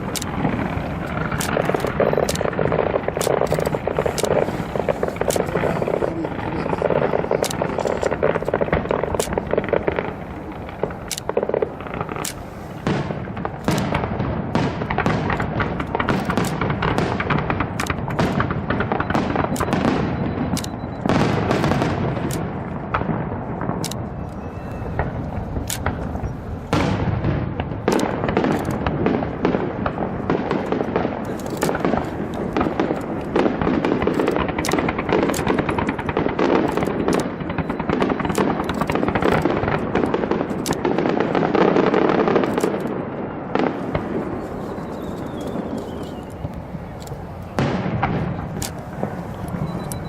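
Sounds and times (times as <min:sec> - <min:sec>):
steady rumble: 0:00.0 - 0:19.0
fireworks bangs and crackles: 0:00.0 - 0:50.0.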